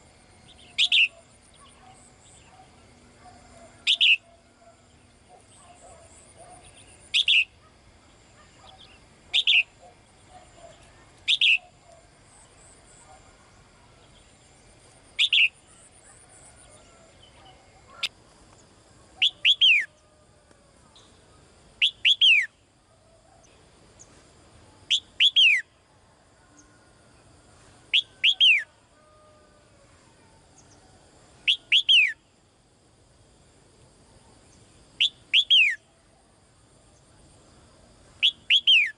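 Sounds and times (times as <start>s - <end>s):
faint bird chirps: 0.4s - 14.5s, 15.1s - 18.1s, 38.2s - 38.9s
songbird whistling calls: 0.5s - 2.5s, 3.8s - 4.3s, 6.6s - 7.5s, 8.6s - 9.8s, 10.7s - 11.8s, 15.2s - 15.6s, 19.2s - 19.9s, 21.8s - 22.6s, 24.9s - 25.7s, 27.9s - 28.7s, 31.4s - 32.2s, 35.0s - 35.8s, 38.2s - 38.9s.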